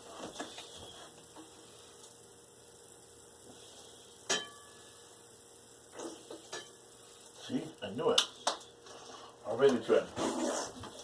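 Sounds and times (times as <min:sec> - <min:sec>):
kitchenware clinking: 0:04.3 - 0:04.8, 0:06.0 - 0:06.8.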